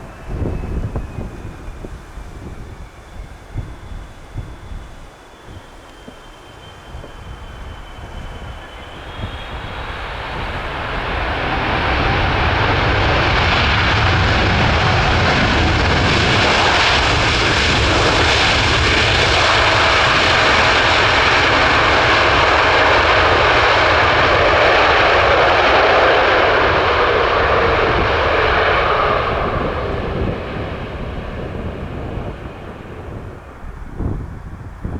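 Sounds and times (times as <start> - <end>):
jet airliner engines roaring: 0.0 - 34.9.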